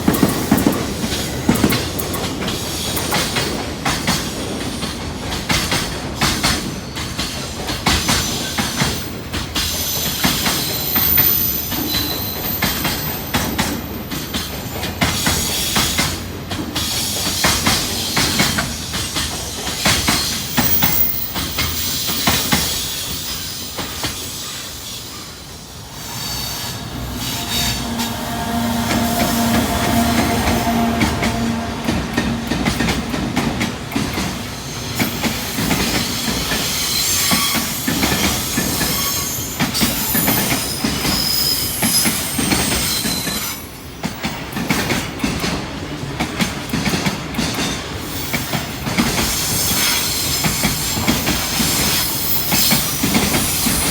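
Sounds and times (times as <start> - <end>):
train wheels clacking over rails: 0.0 - 53.9
high wheel squeal: 20.5 - 33.2
steady humming tone: 26.6 - 33.0.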